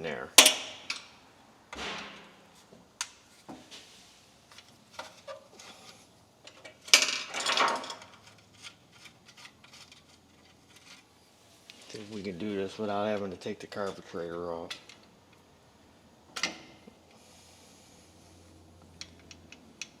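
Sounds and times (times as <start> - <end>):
metal clatter and scrape: 4.6 - 11.1
light clicks of tools and parts: 18.8 - 20.0.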